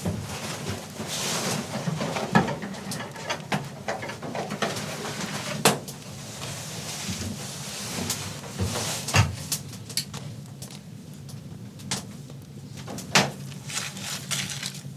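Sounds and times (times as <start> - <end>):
rustling: 13.4 - 14.9.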